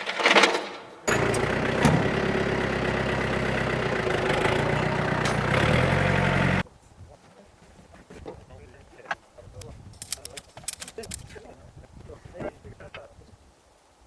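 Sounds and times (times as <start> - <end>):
vehicle engine idling: 1.1 - 6.6.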